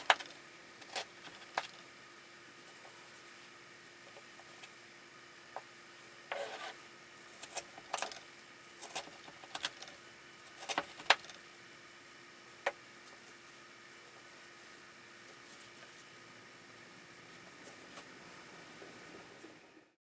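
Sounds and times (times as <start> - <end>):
kitchen scrape: 6.3 - 6.8.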